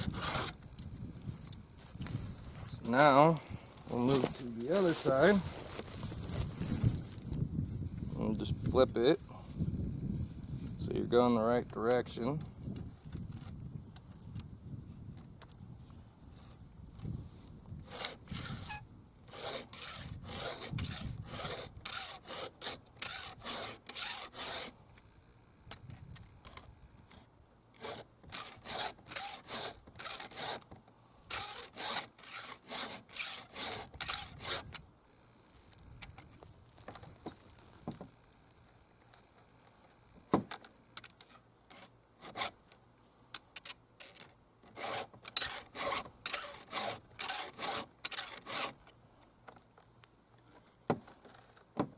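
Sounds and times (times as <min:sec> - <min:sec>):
file rasping on chainsaw chain: 0:00.0 - 0:00.6, 0:17.8 - 0:24.8, 0:27.8 - 0:30.7, 0:31.3 - 0:34.8, 0:41.7 - 0:42.6, 0:44.1 - 0:48.8.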